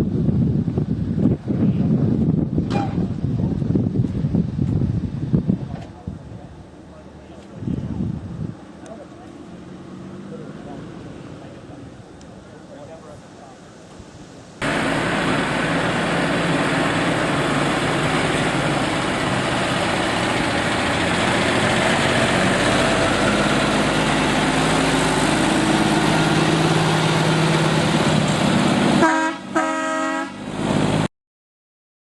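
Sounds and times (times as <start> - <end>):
truck engine running: 14.6 - 31.1
truck horn toots: 29.0 - 30.5.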